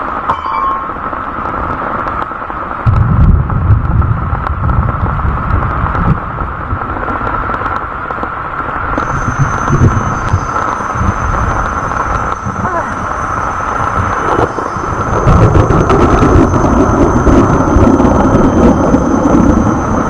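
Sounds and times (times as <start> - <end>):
heavy rain hiss: 0.0 - 20.0
wind buffeting microphone: 2.8 - 7.7, 9.0 - 20.0.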